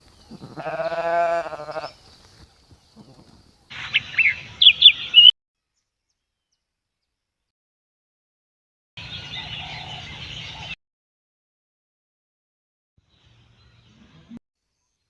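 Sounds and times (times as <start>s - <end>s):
sheep bleating: 0.2s - 2.0s, 2.9s - 3.5s
high bird chirps: 3.7s - 5.3s.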